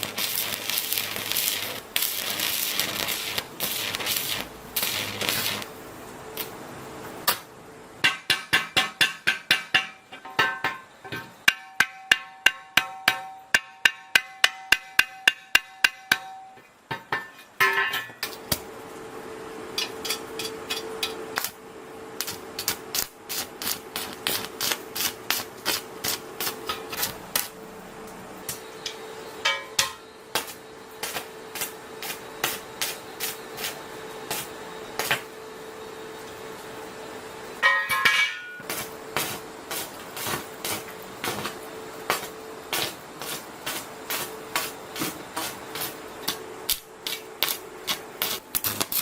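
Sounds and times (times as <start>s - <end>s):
steady hum: 0.0s - 49.0s
metal taps and knocks: 8.0s - 18.2s
hammer striking steel: 8.0s - 18.3s, 28.5s - 31.2s, 37.6s - 39.3s.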